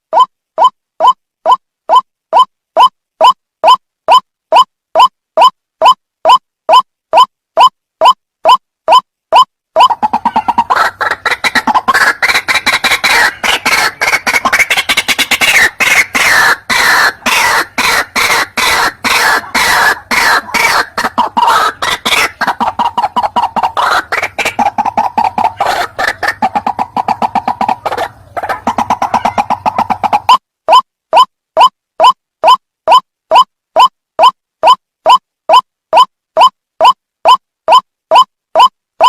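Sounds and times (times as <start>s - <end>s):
waterhen calling: 9.8s - 30.4s.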